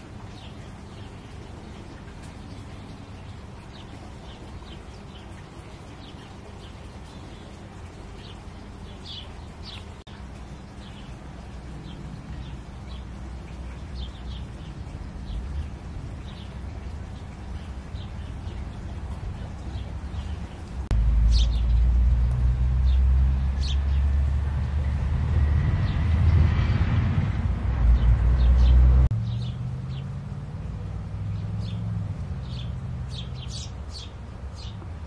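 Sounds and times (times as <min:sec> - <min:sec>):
small birds chirping: 0:00.0 - 0:25.0, 0:31.3 - 0:35.0
steady low rumble: 0:10.0 - 0:33.2.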